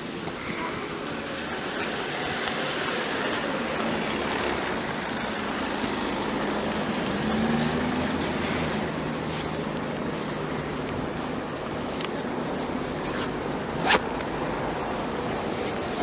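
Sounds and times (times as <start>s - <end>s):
road traffic noise: 0.0s - 16.0s
vehicle engine passing: 1.5s - 9.9s.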